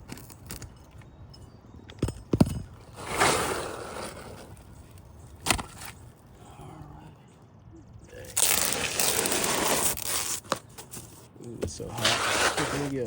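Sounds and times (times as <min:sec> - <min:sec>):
scraping rustle: 0:08.3 - 0:13.0.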